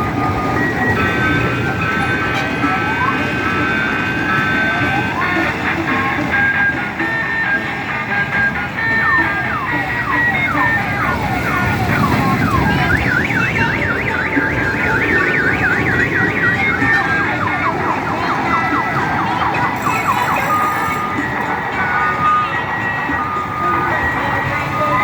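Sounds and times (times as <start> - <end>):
electronic siren whooping and warbling: 8.6 - 25.0.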